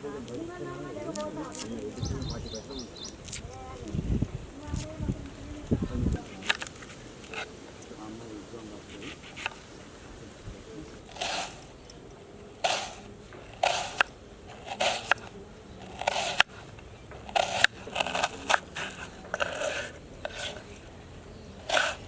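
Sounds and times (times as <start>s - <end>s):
scraping crunching food preparation: 11.0s - 22.0s.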